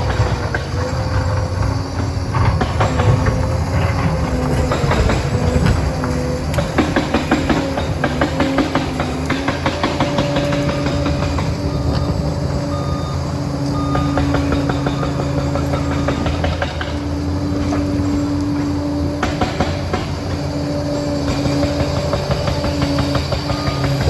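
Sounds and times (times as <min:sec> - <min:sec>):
metal clanks and knocks: 0:00.0 - 0:12.6
diesel engine running: 0:00.0 - 0:24.0.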